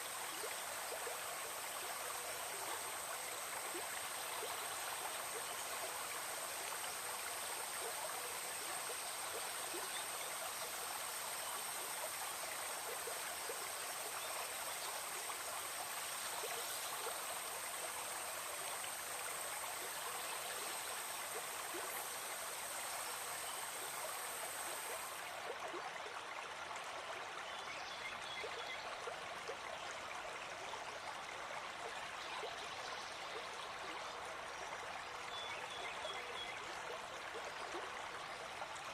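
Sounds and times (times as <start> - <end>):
forest stream rushing: 0.0 - 29.3.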